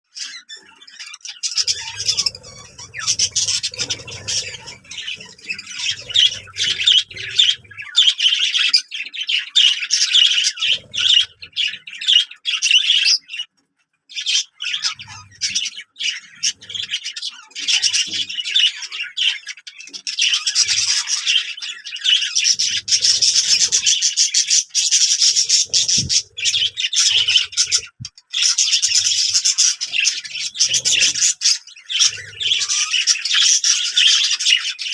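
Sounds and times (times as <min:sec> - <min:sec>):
small birds chirping and squawking: 0:00.0 - 0:34.9.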